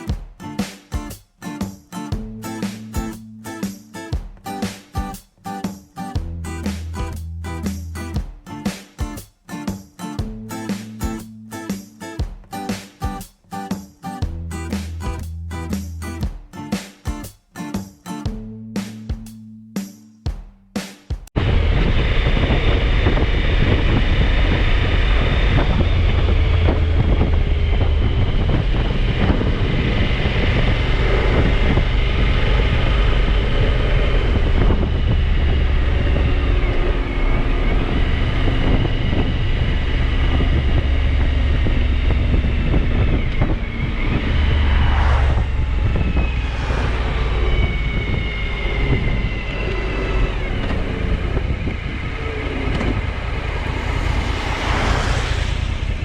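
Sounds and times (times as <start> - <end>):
motorcycle engine running: 21.4 - 54.7
wind rushing over microphone: 21.4 - 56.0.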